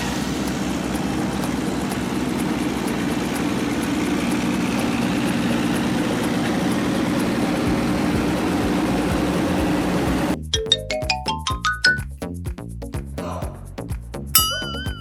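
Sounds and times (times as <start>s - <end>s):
ride-on toy car humming: 0.0s - 10.4s.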